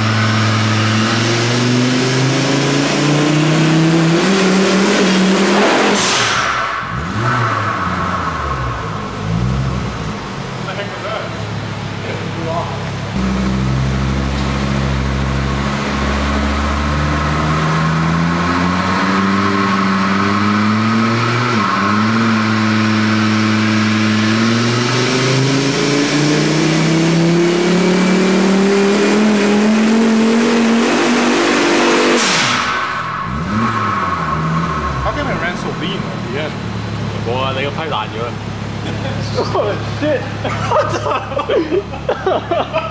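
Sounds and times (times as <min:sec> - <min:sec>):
car engine under full load: 0:00.0 - 0:42.9
sudden loud rush: 0:03.4 - 0:12.0, 0:30.7 - 0:38.5.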